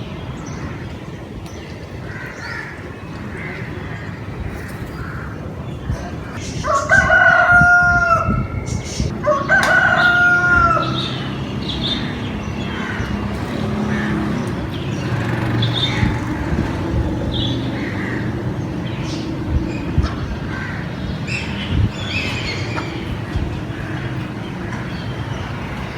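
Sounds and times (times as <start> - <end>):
rooster crowing: 6.6 - 8.5, 9.2 - 11.1.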